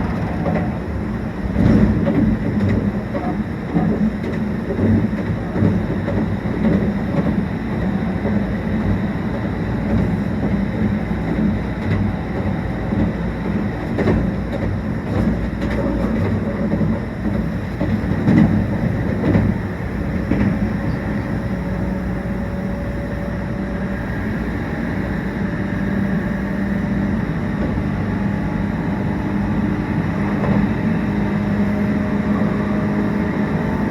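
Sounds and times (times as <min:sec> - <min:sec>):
clicks of wheels over rail joints: 0:00.0 - 0:23.3
rumble of train wheels on rail: 0:00.0 - 0:33.9.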